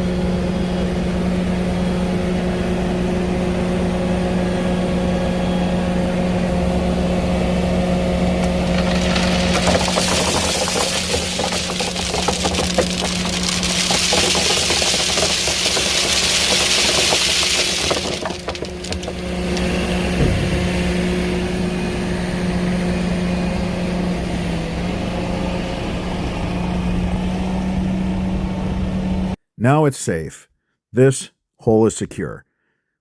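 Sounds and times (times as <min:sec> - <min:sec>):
knocks and clanks: 0:08.4 - 0:20.7.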